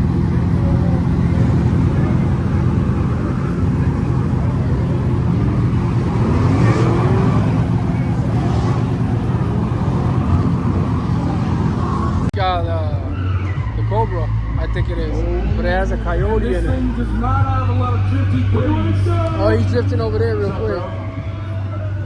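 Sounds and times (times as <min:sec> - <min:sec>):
engine revving up: 0:00.0 - 0:12.4
car engines running: 0:00.0 - 0:22.0.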